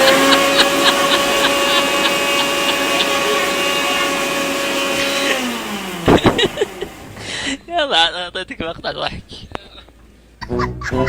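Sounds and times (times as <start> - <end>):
blender motor whining: 0.0 - 7.5.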